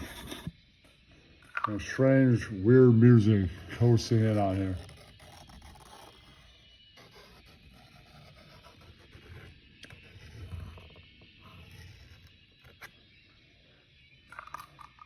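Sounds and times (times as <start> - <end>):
pen scratching on paper: 0.0 - 0.5, 3.5 - 12.8.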